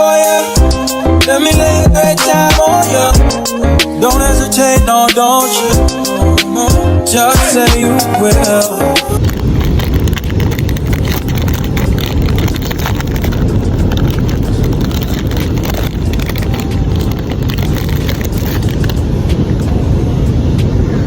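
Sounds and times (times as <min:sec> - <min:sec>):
wind buffeting microphone: 0:07.2 - 0:21.0.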